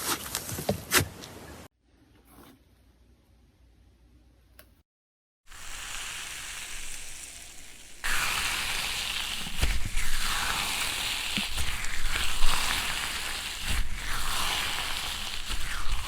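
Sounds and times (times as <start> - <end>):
slime crackling and fizzing: 5.5 - 16.0.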